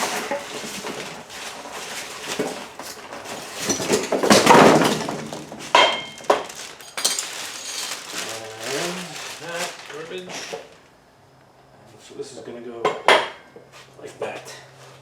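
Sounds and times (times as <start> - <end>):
metal parts knocking and clinking: 3.5 - 8.3.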